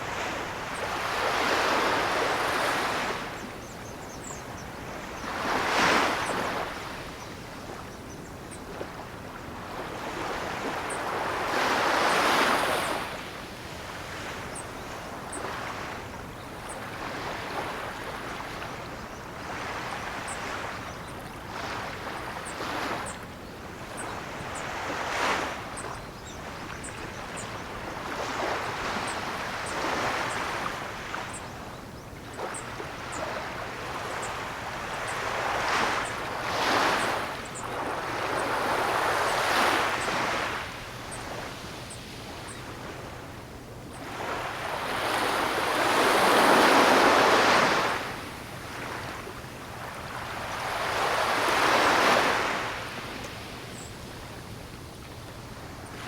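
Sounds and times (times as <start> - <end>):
ocean waves breaking: 44.0 - 53.5.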